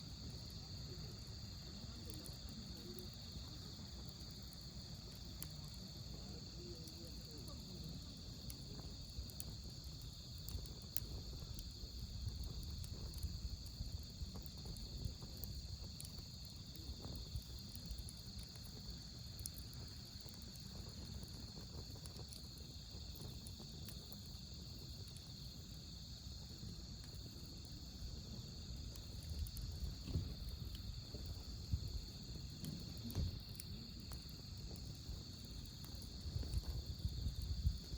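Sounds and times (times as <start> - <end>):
campfire crackling: 0.0 - 37.9
crickets trilling: 0.0 - 37.9.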